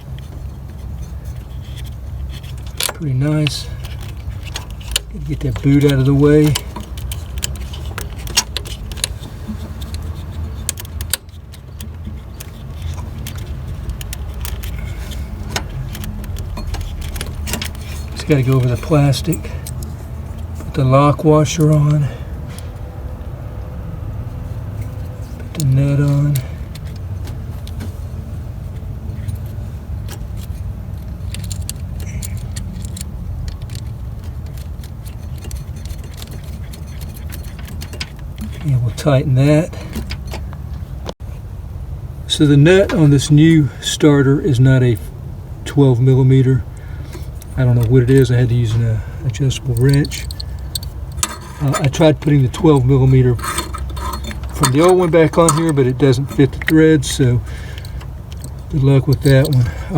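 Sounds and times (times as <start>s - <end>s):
steady low hum: 0.0s - 59.9s
steady low rumble: 0.0s - 59.9s
metallic clicks of hand tools: 30.1s - 38.7s, 49.3s - 56.8s, 57.5s - 59.9s.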